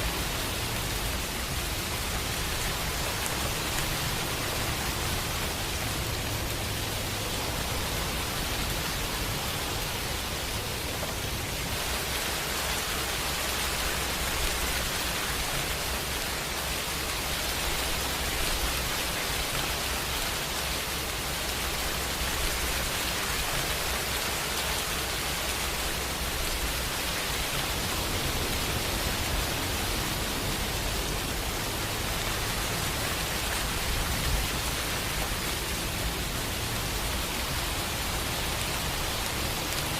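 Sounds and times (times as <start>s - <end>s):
rain hissing: 0.0s - 39.9s.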